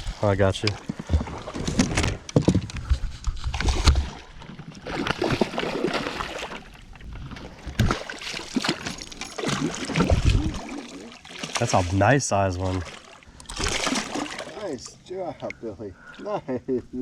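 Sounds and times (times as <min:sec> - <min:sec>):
water splashing and sloshing: 0:00.0 - 0:16.4
knocks and rustles: 0:00.7 - 0:04.1.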